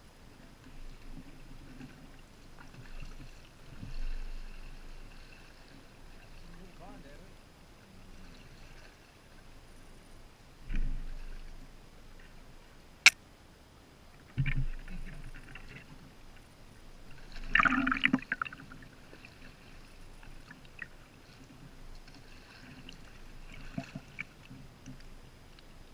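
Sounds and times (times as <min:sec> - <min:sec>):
water lapping: 0:00.0 - 0:10.2, 0:14.2 - 0:25.9
paddle splashing in water: 0:00.5 - 0:07.0, 0:14.2 - 0:25.0.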